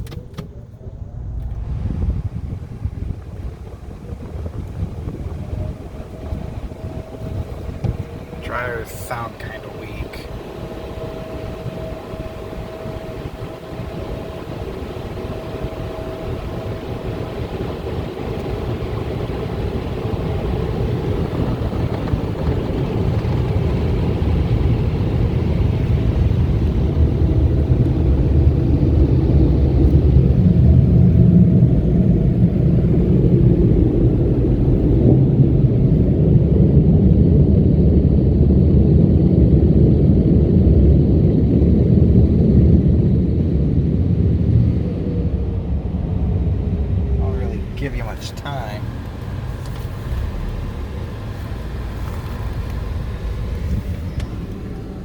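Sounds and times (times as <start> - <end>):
car wash dryer blowers rushing: 0.0 - 55.0.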